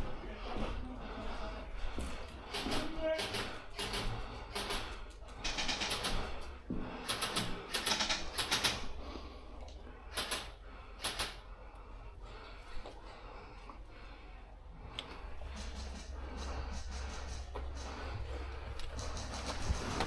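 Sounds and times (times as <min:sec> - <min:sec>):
airsoft guns firing: 0:07.2 - 0:08.9.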